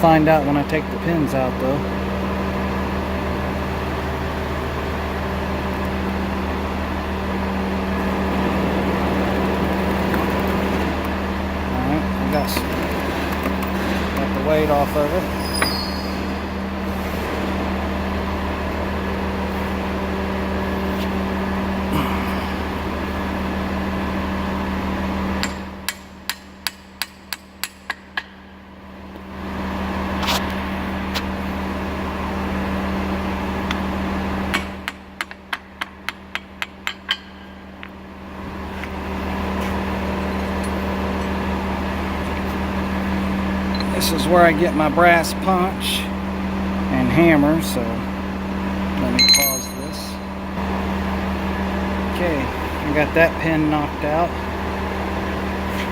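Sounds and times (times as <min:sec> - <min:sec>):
engine running: 0:00.0 - 0:55.9
hammer tapping metal: 0:25.4 - 0:28.4, 0:34.5 - 0:37.9, 0:49.2 - 0:50.2.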